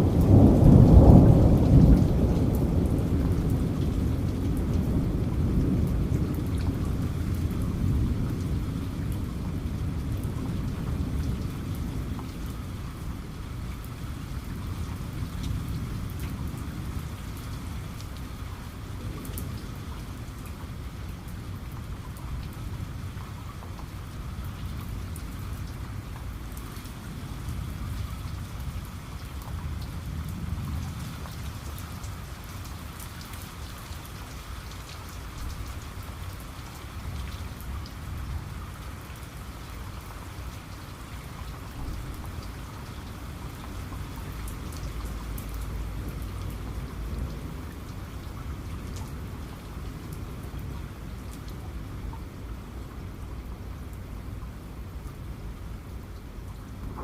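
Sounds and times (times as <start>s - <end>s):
heavy rain: 0.0s - 57.0s
low rumble of thunder: 0.0s - 57.0s.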